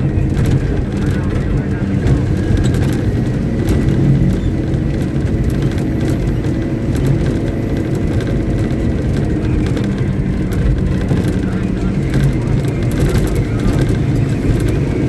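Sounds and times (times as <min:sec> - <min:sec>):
diesel truck engine humming: 0:00.0 - 0:15.0.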